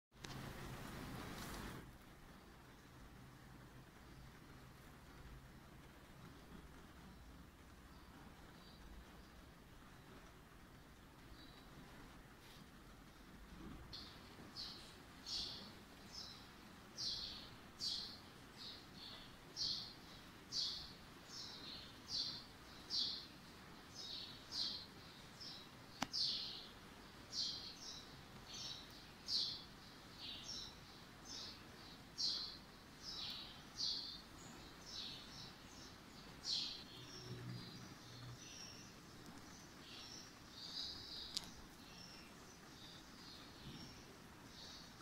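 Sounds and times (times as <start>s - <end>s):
small bird chirping: 11.2s - 45.0s.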